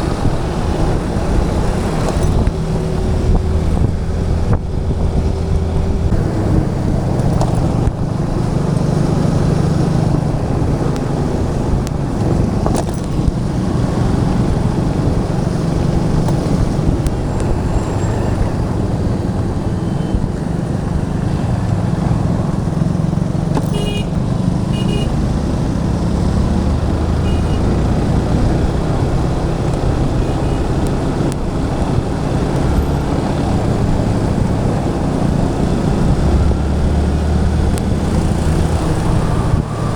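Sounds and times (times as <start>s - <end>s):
motorcycle engine running: 0.0s - 39.9s
wind rush on microphone: 0.0s - 39.9s
vehicle horns tooting: 23.6s - 25.2s, 27.2s - 27.8s, 30.1s - 30.8s.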